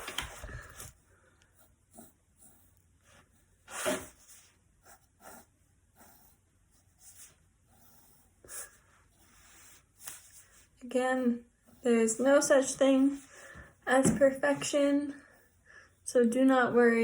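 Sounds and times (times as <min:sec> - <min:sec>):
pen strokes on paper: 0:01.6 - 0:13.3.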